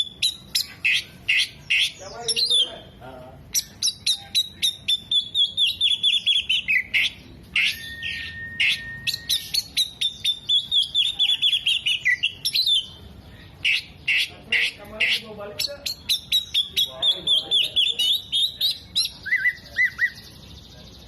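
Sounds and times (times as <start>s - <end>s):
long held bird whistle: 4.7s - 12.9s.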